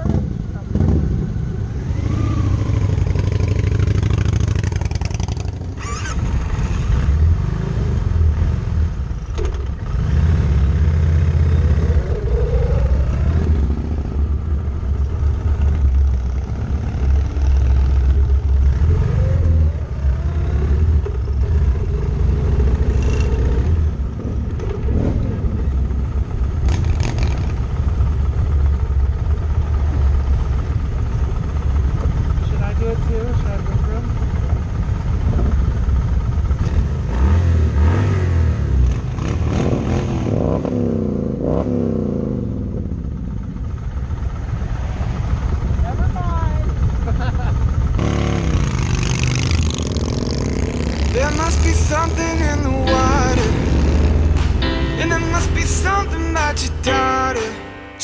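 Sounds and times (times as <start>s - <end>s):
motorcycle engines accelerating: 0.0s - 57.6s.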